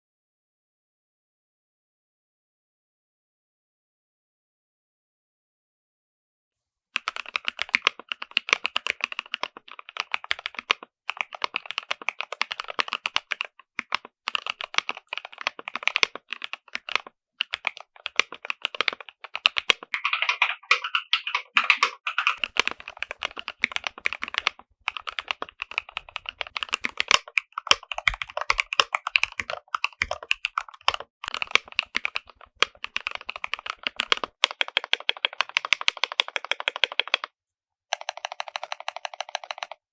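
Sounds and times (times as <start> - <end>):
mechanical keyboard typing: 7.0 - 37.3, 37.9 - 39.9.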